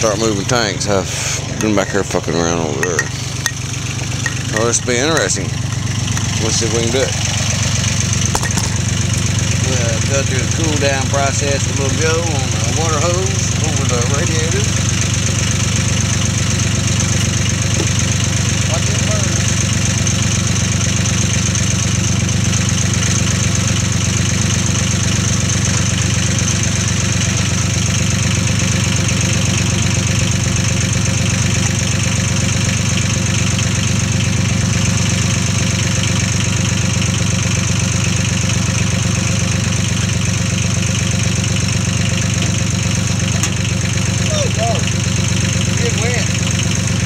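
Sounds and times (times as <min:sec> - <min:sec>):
small tractor engine idling: 0:00.0 - 0:47.0.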